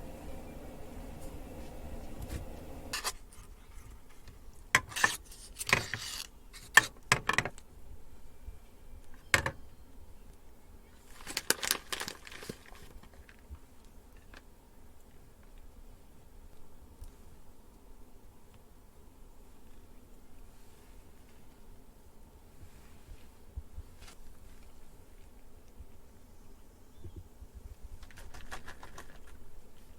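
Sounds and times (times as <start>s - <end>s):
packaging rustling: 11.2s - 13.2s.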